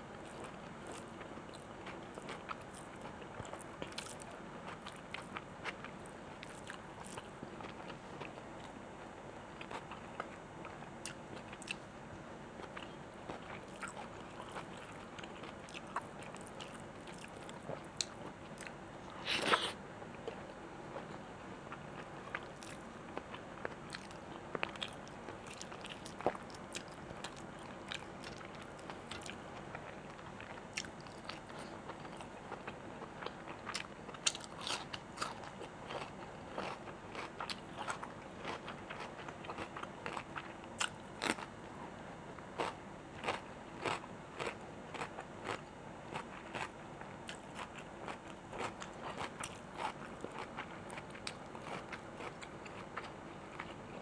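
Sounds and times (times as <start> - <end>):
wet chewing and smacking: 12.6 - 18.7, 42.6 - 54.0.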